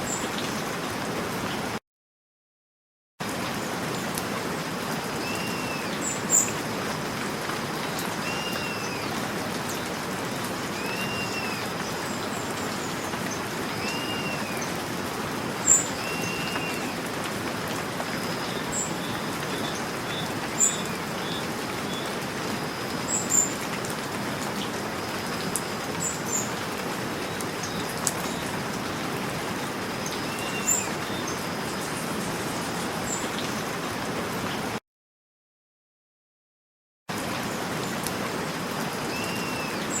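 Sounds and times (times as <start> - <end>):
steady rain falling: 0.0 - 1.8, 3.2 - 34.8, 37.1 - 40.0
bird call: 8.2 - 9.1, 10.8 - 11.8, 13.7 - 14.7, 15.6 - 17.0, 39.1 - 40.0.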